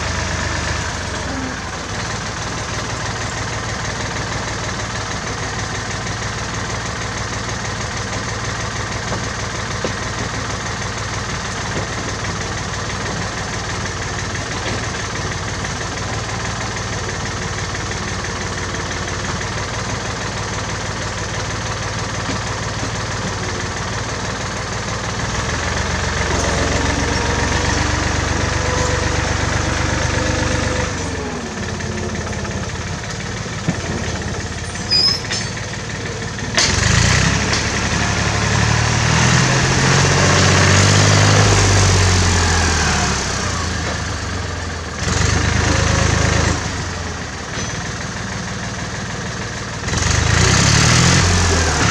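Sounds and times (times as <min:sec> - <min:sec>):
tractor engine running: 0:00.0 - 0:51.9
rising engine whine: 0:25.3 - 0:35.6.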